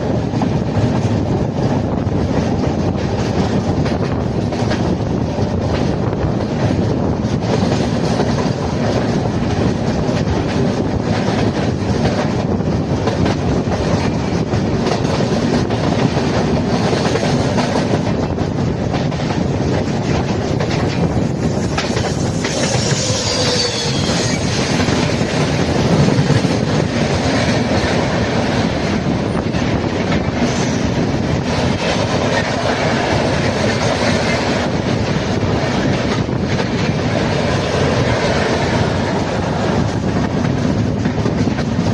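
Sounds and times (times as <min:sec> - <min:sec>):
train rumbling along track: 0:00.0 - 0:41.9
high-pitched wheel squeal: 0:22.1 - 0:24.8.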